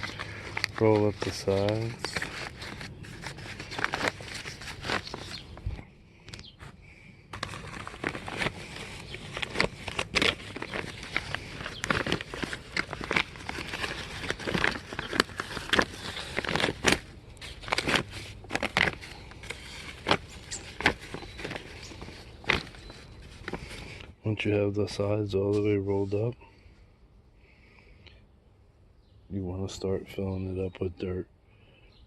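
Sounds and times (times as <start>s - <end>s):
grow bag crinkling: 0.0s - 5.9s, 7.3s - 24.2s.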